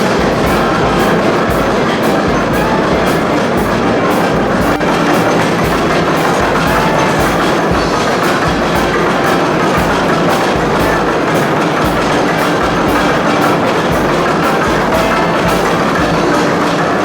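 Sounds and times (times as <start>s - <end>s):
old machinery clattering: 0.0s - 17.0s.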